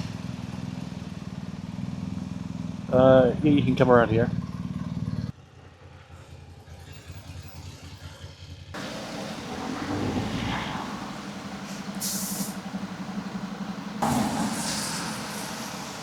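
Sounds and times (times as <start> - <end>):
motorcycle engine idling: 8.8 - 16.0
short hiss: 8.8 - 16.0
traffic noise: 8.8 - 16.0.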